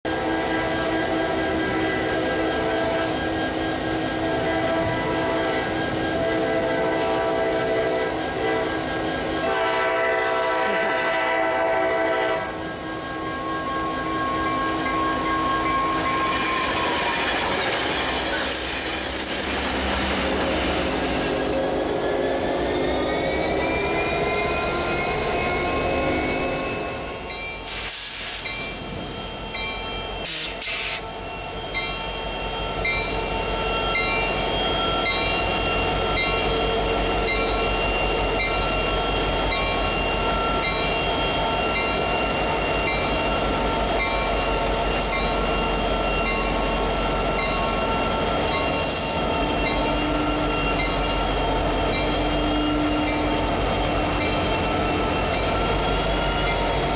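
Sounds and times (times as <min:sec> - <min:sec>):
freight locomotives passing: 0:00.1 - 0:56.9
hissing bursts: 0:27.6 - 0:29.3.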